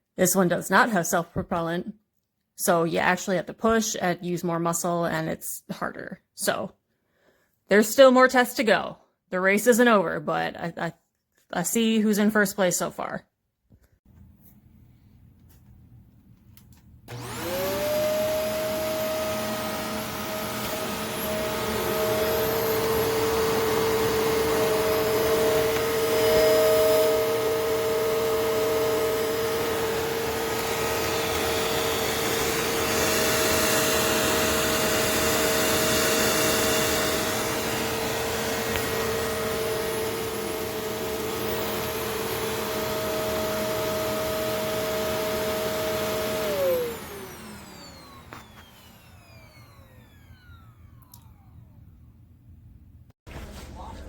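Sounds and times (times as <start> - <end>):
vacuum cleaner motor whining: 17.1 - 52.1.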